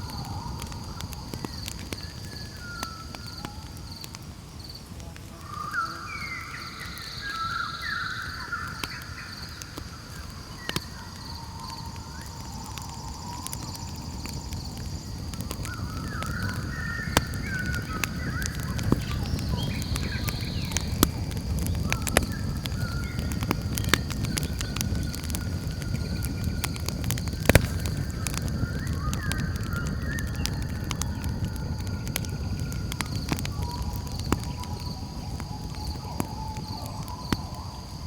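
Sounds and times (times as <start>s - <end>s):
campfire crackling and popping: 0.0s - 38.0s
night insects trilling: 0.0s - 38.0s
wavering chirping calls: 15.1s - 26.6s.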